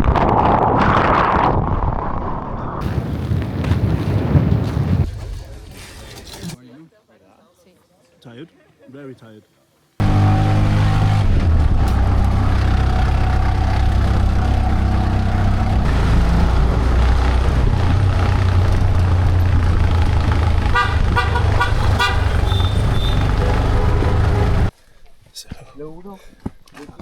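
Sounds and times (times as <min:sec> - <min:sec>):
vehicle engine running: 0:10.0 - 0:24.7
short horn toots: 0:20.7 - 0:24.7.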